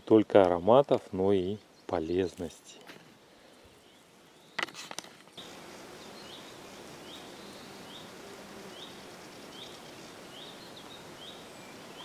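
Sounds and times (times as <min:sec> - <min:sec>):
background hiss: 0:00.0 - 0:12.0
bird chirping: 0:03.6 - 0:04.8, 0:05.4 - 0:12.0.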